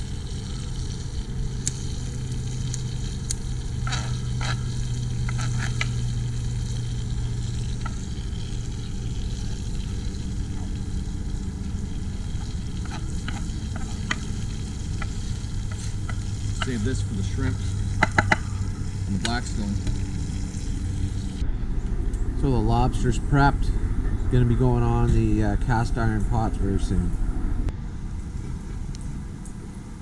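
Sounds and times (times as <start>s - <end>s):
garlic sizzling in a pan: 0.0s - 21.4s
steady low hum: 0.0s - 30.0s
utensil clicking against pan: 12.4s - 16.8s, 17.9s - 18.5s.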